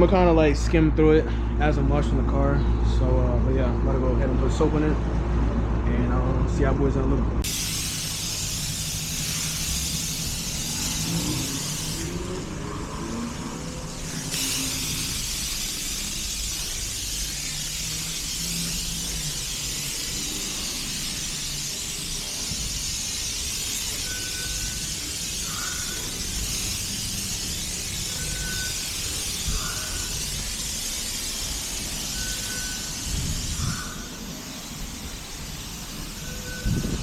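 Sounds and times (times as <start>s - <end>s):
high-pressure spray hissing: 7.4s - 37.0s.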